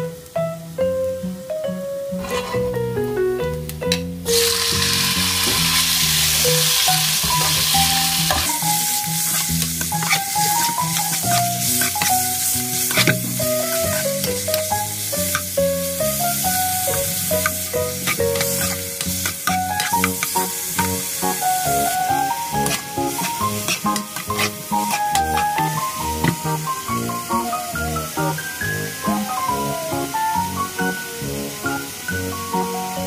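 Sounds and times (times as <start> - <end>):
chicken sizzling in hot oil: 4.2 - 33.0
spatula clicking and scraping pan: 7.1 - 15.5, 16.9 - 26.6.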